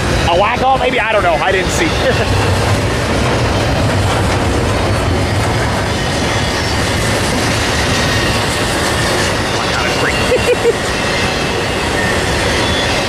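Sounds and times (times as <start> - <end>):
freight train rumbling past: 0.0 - 13.0
wheel squeal: 3.5 - 13.0.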